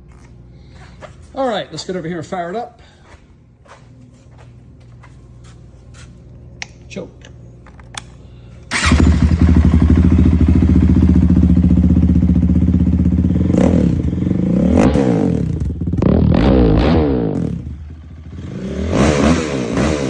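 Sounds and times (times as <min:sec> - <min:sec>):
atv engine starting and idling: 0:08.7 - 0:20.0
engine revving: 0:08.7 - 0:20.0.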